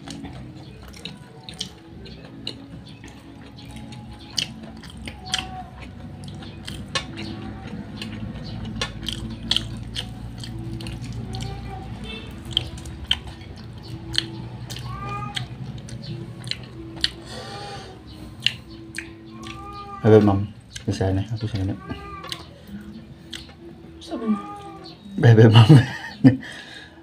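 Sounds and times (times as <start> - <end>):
person chewing and lip smacking: 0.0 - 19.8, 20.6 - 20.9, 22.2 - 23.7.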